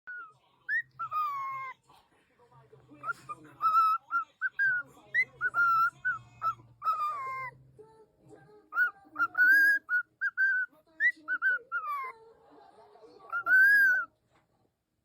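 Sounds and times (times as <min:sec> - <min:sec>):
parrot whistling: 0:03.0 - 0:07.6, 0:08.8 - 0:12.1, 0:13.3 - 0:14.1.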